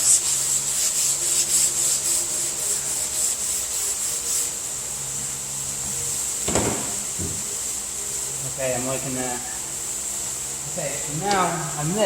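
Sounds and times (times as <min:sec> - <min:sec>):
sandpaper rasping on car panel: 0:00.0 - 0:07.8
short knock: 0:06.5 - 0:07.4.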